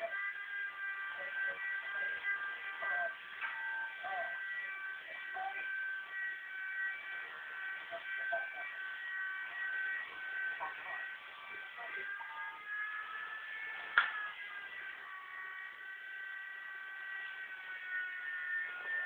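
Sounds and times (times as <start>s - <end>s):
rc helicopter motors whining: 0.0s - 19.0s
sharp click: 13.9s - 14.2s.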